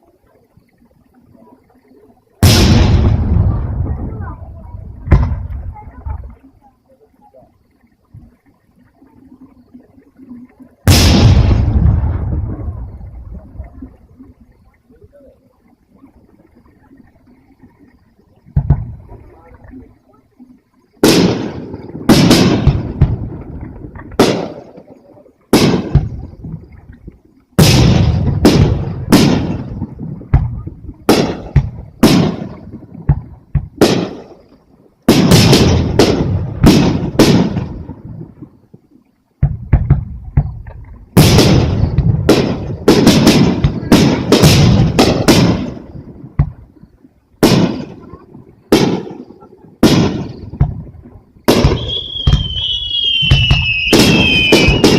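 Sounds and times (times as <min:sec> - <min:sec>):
firework shells bursting: 0:21.0 - 0:24.8, 0:25.5 - 0:26.4, 0:27.6 - 0:34.4, 0:35.1 - 0:38.0, 0:39.4 - 0:46.8, 0:47.4 - 0:54.9.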